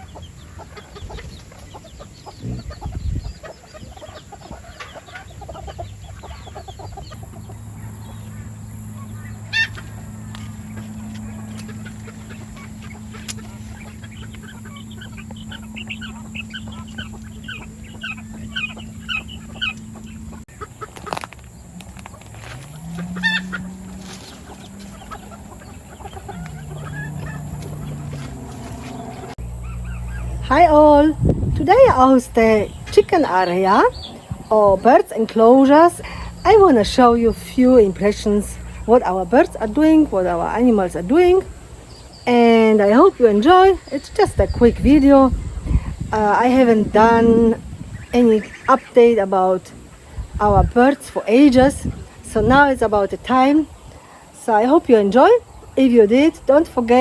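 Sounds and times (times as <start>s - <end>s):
chickens clucking: 0.0s - 57.0s
rooster crowing: 22.6s - 30.4s.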